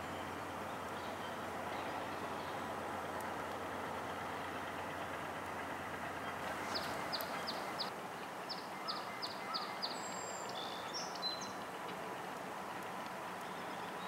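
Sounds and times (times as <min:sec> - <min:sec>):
distant freight train rumble: 0:00.0 - 0:14.0
songbird whistling: 0:08.5 - 0:11.6.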